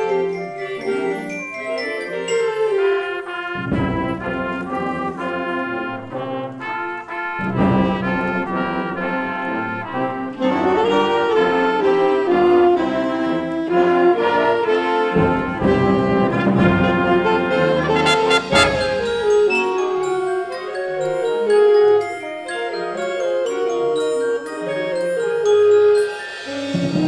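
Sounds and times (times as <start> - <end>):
concert band playing: 7.0 - 21.2.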